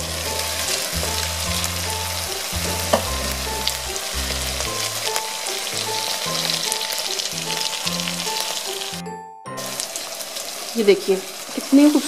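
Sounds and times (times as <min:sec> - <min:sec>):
background music with low bass: 0:00.0 - 0:08.4
vegetables sizzling in oil: 0:00.0 - 0:09.0, 0:09.6 - 0:12.0.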